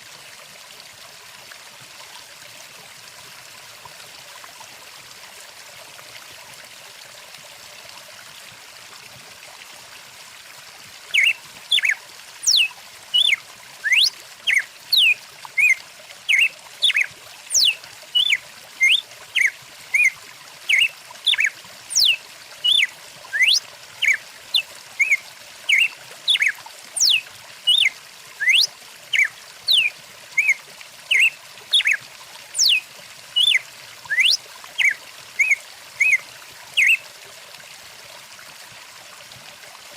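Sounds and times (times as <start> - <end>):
stream water rushing: 0.0 - 39.9
bird whistled calls: 11.1 - 20.1, 20.7 - 32.0, 32.6 - 32.8, 33.4 - 36.2, 36.8 - 37.0.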